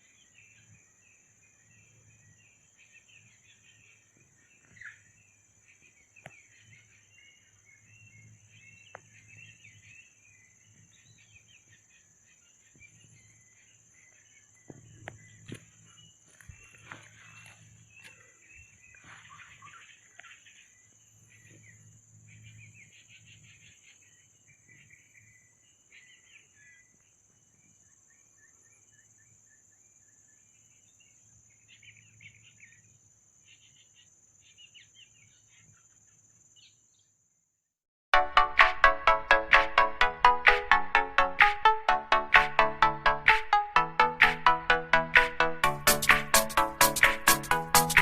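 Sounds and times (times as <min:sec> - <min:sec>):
birds chirping and trilling: 0:00.0 - 0:29.1.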